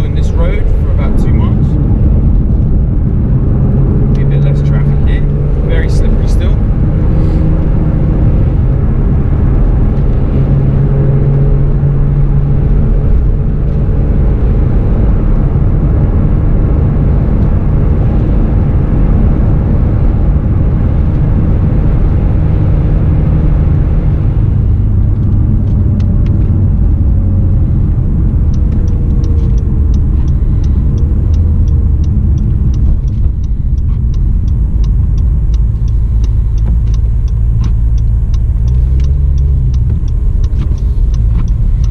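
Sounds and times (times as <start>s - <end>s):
car engine heard from cabin: 0.0s - 41.9s
road noise: 0.0s - 41.9s
quick even ticks: 28.5s - 41.9s.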